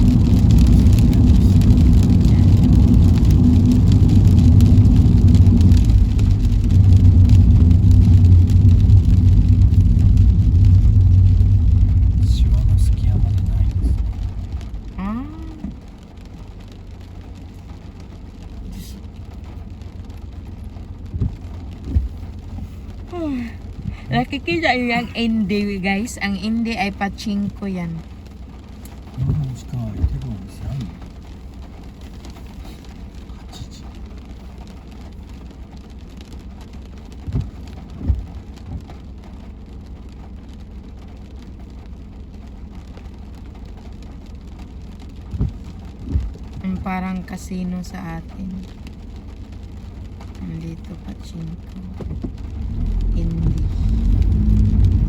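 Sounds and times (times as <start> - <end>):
low thumps: 0.0 - 17.8, 19.2 - 24.8, 37.0 - 39.4, 42.4 - 46.8, 51.9 - 55.0
car engine and road rumble: 0.0 - 55.0
rain noise: 0.0 - 55.0
soft thumps: 21.1 - 22.2, 37.3 - 38.9, 45.3 - 46.6.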